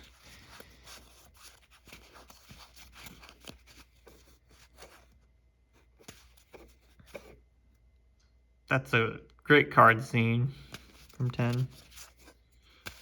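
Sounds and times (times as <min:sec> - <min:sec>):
trading cards rustling and clicking: 0:00.0 - 0:05.2, 0:05.8 - 0:07.4, 0:10.6 - 0:13.0.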